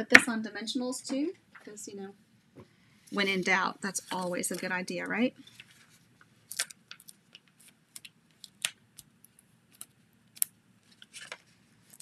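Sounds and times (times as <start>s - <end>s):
paper rustling: 3.2s - 9.9s, 10.8s - 12.0s.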